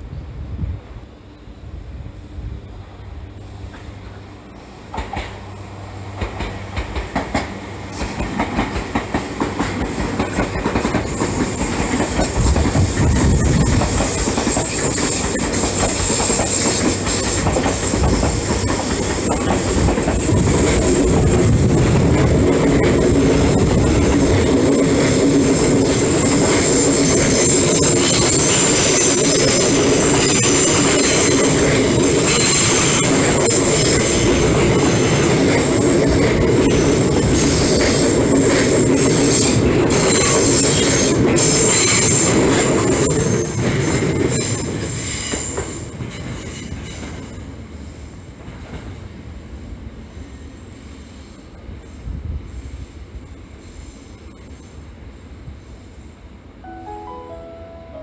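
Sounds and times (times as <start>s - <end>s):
steady train hum: 0.0s - 58.0s
train wheels clacking over joints: 4.9s - 5.4s, 6.2s - 47.2s.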